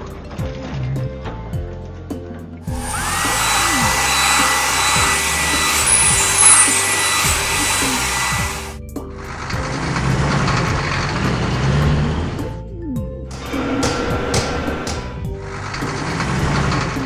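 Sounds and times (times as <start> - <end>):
background music with steady beat: 0.0 - 10.9, 12.4 - 17.0
loud hiss with high whine: 2.7 - 8.8.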